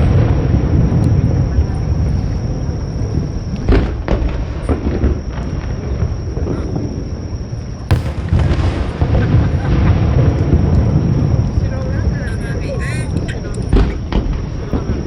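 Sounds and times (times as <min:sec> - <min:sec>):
fireworks booming: 0:03.0 - 0:07.2, 0:07.8 - 0:12.0, 0:13.7 - 0:15.0
firework cracks: 0:07.9 - 0:10.7.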